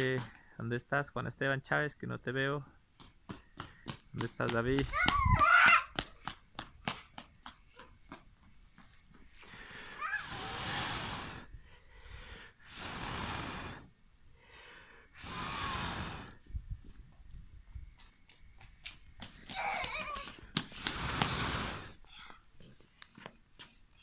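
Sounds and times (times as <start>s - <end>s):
person blowing on campfire: 9.5s - 16.6s, 20.7s - 22.1s
fire crackling: 10.2s - 11.4s, 12.7s - 13.8s, 15.2s - 16.4s, 20.7s - 22.0s.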